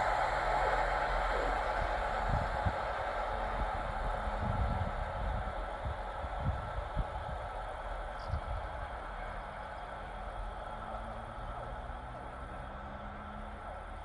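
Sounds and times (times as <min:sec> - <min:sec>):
wind buffeting microphone: 0:00.0 - 0:10.8
train rolling rumble: 0:00.0 - 0:14.0.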